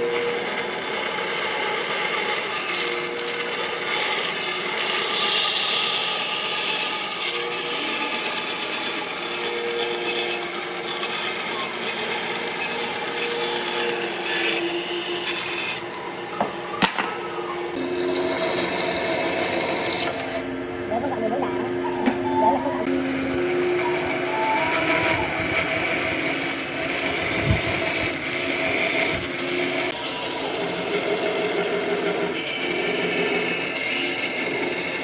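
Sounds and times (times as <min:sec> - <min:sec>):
power tool rasping wood: 0:00.0 - 0:16.6, 0:17.6 - 0:21.8, 0:22.8 - 0:35.0.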